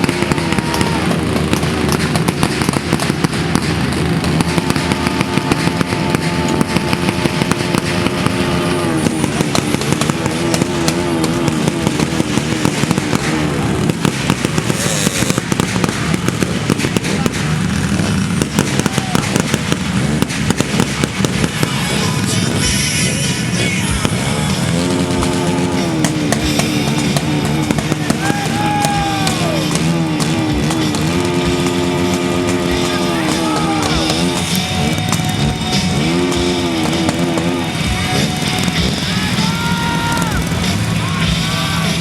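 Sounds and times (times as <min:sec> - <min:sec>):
crackling and popping: 0:00.0 - 0:21.9
wavering pitched sounds: 0:21.6 - 0:42.0.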